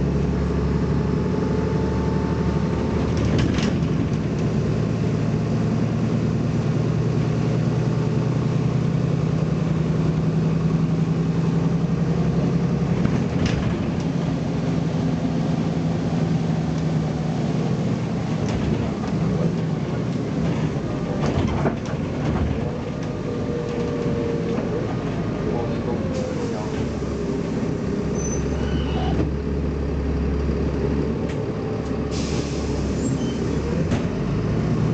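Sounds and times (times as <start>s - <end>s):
bus diesel engine running: 0.0s - 34.9s.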